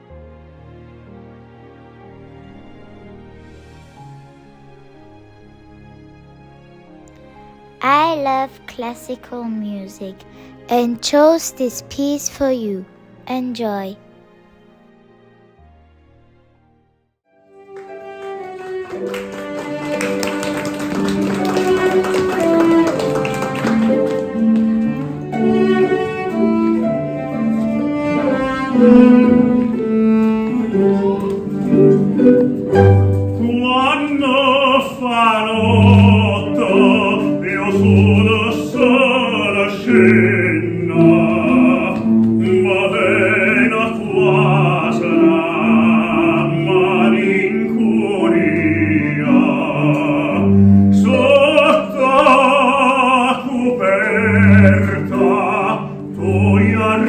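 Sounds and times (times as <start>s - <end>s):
operatic singing voice: 7.8s - 14.0s, 30.5s - 31.9s, 33.4s - 57.0s
bowed low strings: 24.3s - 34.2s.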